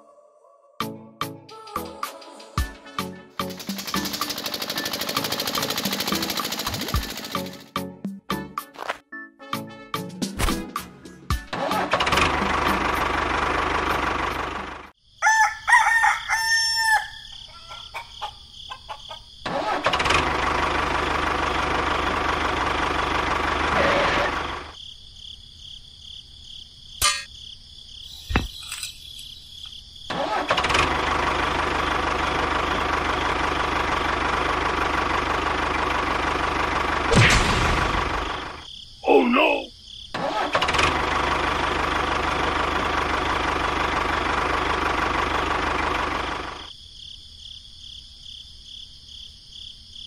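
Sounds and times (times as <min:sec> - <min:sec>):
tractor engine running: 0:03.4 - 0:07.8, 0:11.6 - 0:14.9, 0:19.4 - 0:24.8, 0:30.1 - 0:38.7, 0:40.2 - 0:46.7
rooster crowing: 0:15.2 - 0:19.3.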